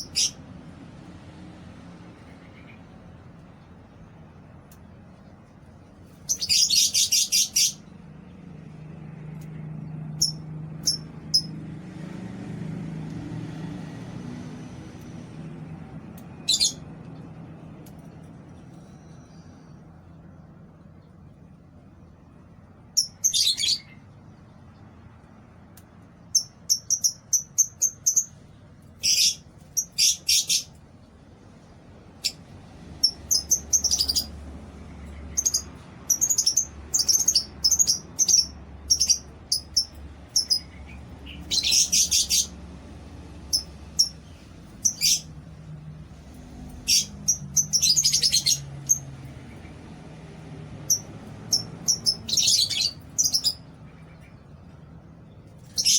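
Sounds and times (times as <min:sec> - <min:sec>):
lovebirds chirping: 0:06.1 - 0:07.9, 0:33.0 - 0:42.6, 0:43.5 - 0:45.5, 0:46.7 - 0:49.8, 0:50.8 - 0:55.9.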